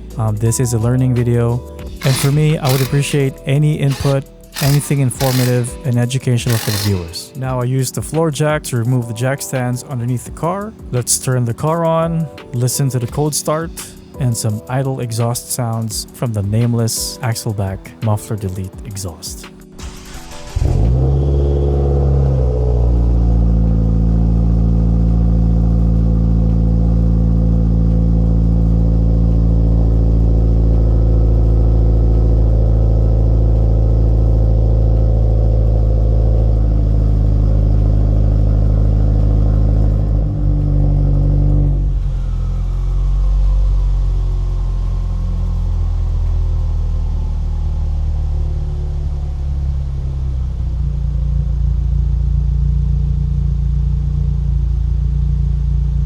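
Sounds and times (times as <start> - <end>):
car engine idling: 0.0 - 12.7, 19.7 - 56.0.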